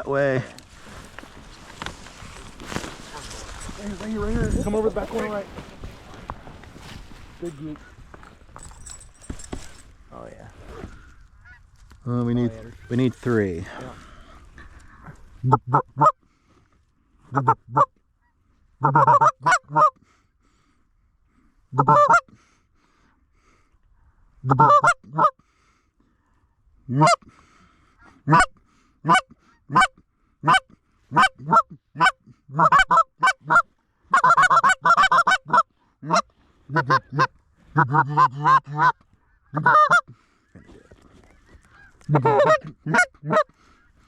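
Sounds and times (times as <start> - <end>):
geese honking and clucking: 11.0 - 11.8, 15.3 - 16.2, 17.2 - 20.1, 21.7 - 22.4, 24.4 - 25.4, 26.9 - 27.3, 28.0 - 44.0.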